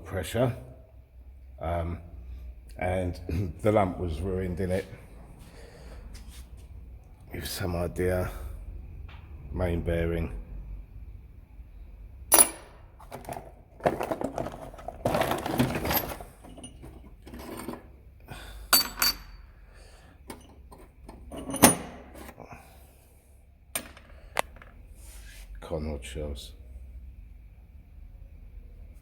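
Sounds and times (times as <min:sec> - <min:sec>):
metal parts clinking: 0:12.3 - 0:18.0, 0:18.7 - 0:19.5, 0:20.3 - 0:22.4
metal parts rattling: 0:12.3 - 0:18.0, 0:20.3 - 0:22.4.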